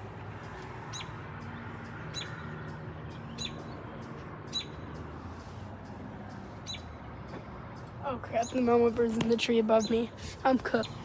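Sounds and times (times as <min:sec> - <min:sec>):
bird chirping: 0:00.3 - 0:08.8.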